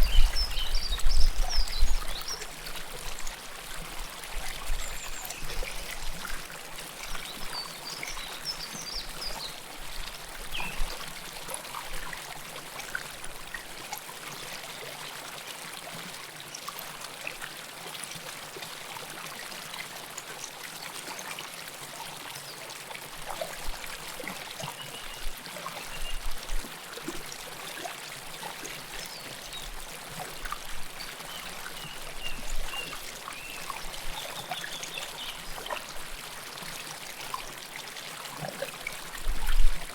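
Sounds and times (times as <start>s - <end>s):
river water flowing and splashing: 0.0s - 39.9s.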